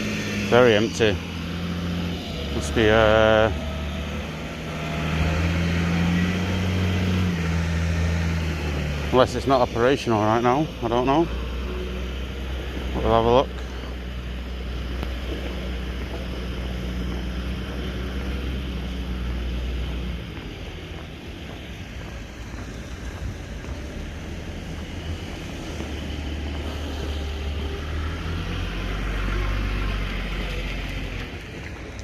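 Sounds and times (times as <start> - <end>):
steady outdoor hiss: 0.0 - 32.0
wind buffeting microphone: 14.5 - 27.8.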